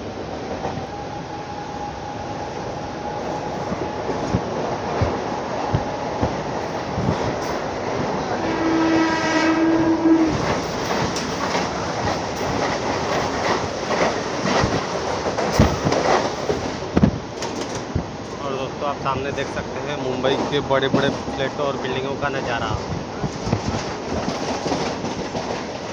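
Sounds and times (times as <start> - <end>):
train passing close alongside: 0.0 - 25.9
train running at speed: 0.0 - 25.9
train horn: 0.8 - 4.4, 8.2 - 10.9.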